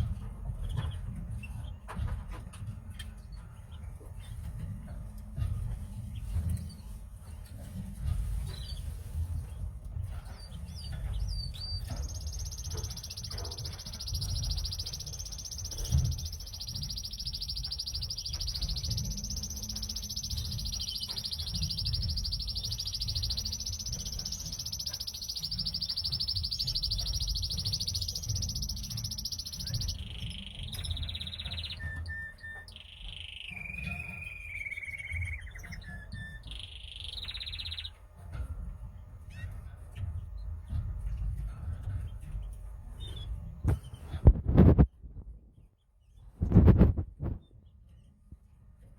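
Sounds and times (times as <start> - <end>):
steady low rumble: 0.0 - 32.0
canary singing trills: 0.0 - 44.2.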